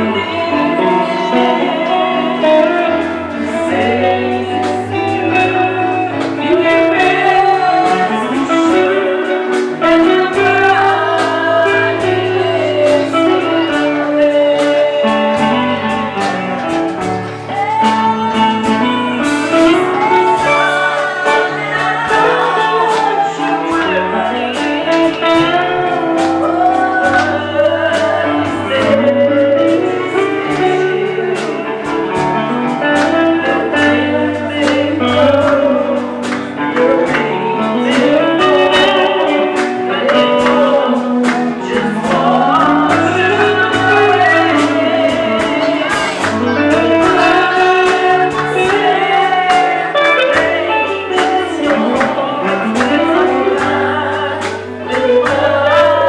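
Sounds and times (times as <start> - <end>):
guitar: 0.0 - 56.0
person singing gospel song: 0.0 - 56.0
steady beat: 0.0 - 56.0.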